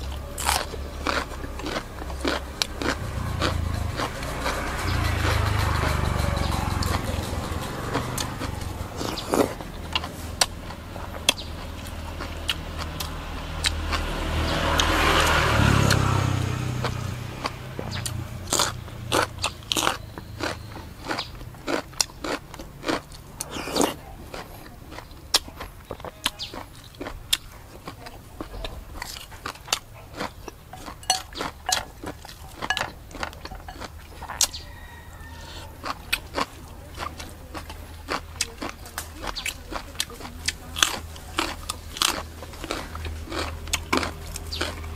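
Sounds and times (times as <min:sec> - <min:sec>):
rumbling noise: 0:00.0 - 0:22.6
crunching raw vegetables: 0:00.0 - 0:44.9.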